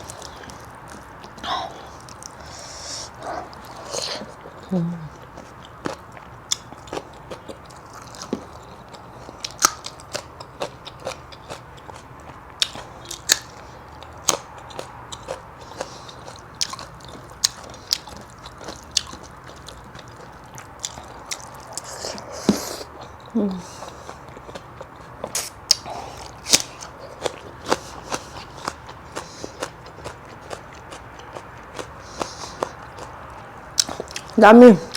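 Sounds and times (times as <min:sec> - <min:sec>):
person chewing with crunches: 0:00.0 - 0:34.9
breathy sound: 0:01.4 - 0:03.4.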